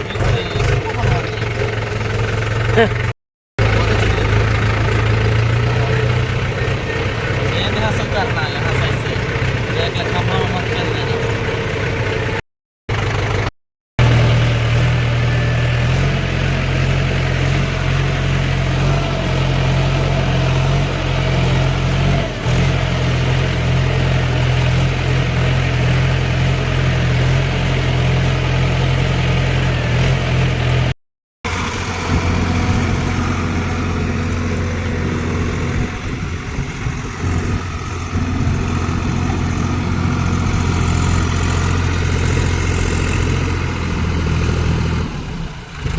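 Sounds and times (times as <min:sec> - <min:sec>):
diesel tractor engine running: 0:00.0 - 0:45.9.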